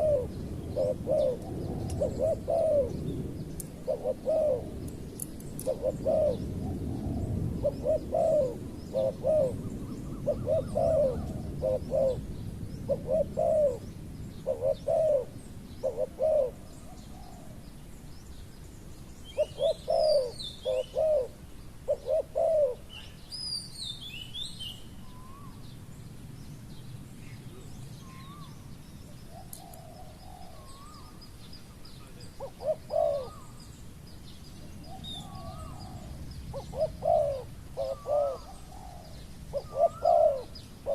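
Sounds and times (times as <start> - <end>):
doves cooing: 0.0 - 17.7, 19.3 - 23.2, 29.2 - 31.2, 32.0 - 33.7, 34.8 - 40.9.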